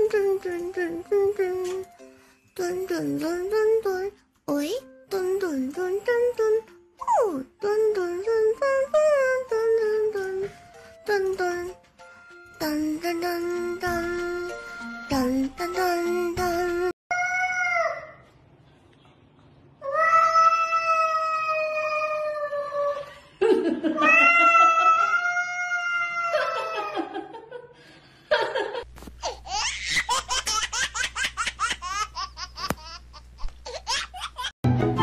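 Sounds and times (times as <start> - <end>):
cat yowling: 24.0 - 26.6
person laughing: 26.3 - 27.7.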